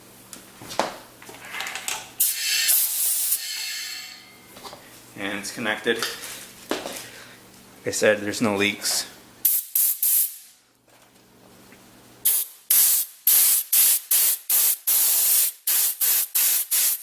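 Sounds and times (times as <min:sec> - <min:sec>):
compressed air hissing bursts: 0:02.2 - 0:03.4, 0:09.4 - 0:10.6, 0:12.2 - 0:17.0.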